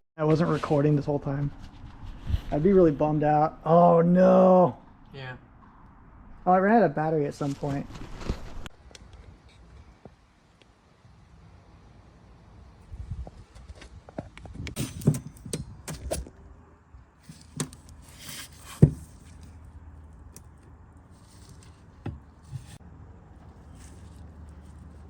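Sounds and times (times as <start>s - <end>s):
tools handled on a workbench: 14.4s - 16.4s, 17.2s - 19.6s.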